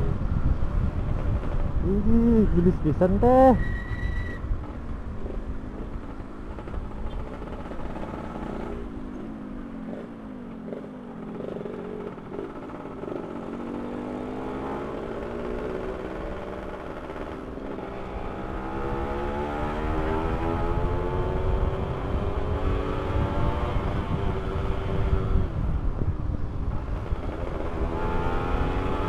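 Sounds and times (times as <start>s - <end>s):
two-stroke motorcycle engine revving: 5.2s - 25.7s, 26.8s - 29.0s.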